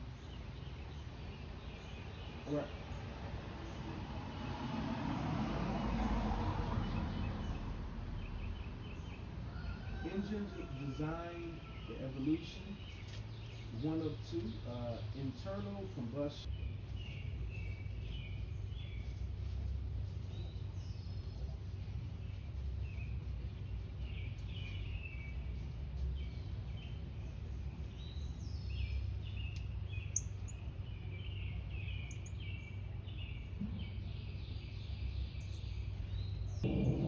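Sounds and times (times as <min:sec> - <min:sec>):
small songbirds chirping: 0:00.0 - 0:04.4, 0:05.7 - 0:37.0
steady low rumble: 0:12.0 - 0:37.0.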